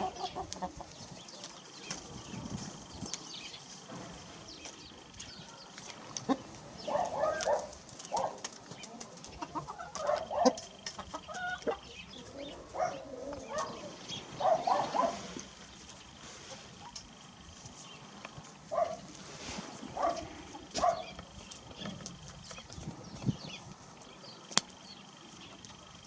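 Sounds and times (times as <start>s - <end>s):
rooster clucking: 0.0s - 1.0s, 6.0s - 7.5s, 8.8s - 15.5s.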